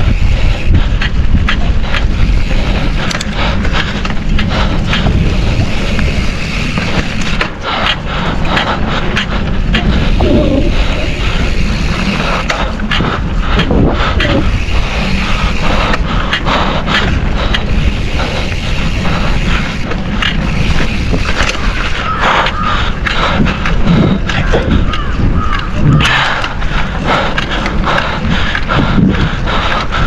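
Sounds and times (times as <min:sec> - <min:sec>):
bike clattering and knocking: 0:00.0 - 0:30.0.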